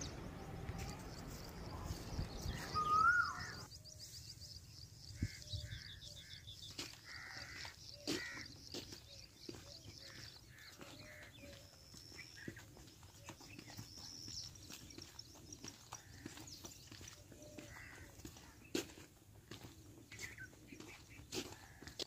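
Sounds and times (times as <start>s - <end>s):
faint high chirping: 0.0s - 6.1s
bird caws: 2.5s - 3.7s, 5.2s - 11.7s, 15.9s - 18.9s, 20.1s - 22.0s
sharp rising whistled bird note: 2.6s - 3.6s.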